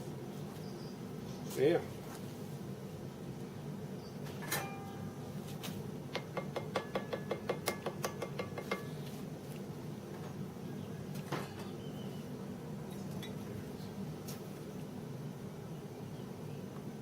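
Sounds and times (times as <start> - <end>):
metal object tapped ringing: 4.5 - 5.0.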